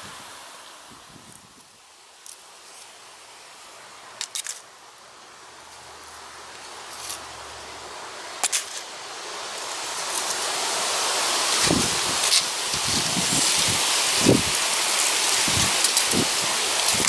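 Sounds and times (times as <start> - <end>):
dry leaves rustling: 0.0 - 17.0
strong wind gust: 9.2 - 17.0
wind buffeting microphone: 11.6 - 17.0.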